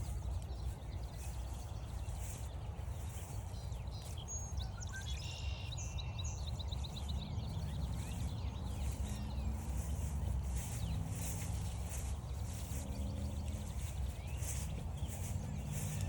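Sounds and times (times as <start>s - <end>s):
songbird singing: 0.0s - 16.0s
steady low rumble: 6.2s - 16.0s.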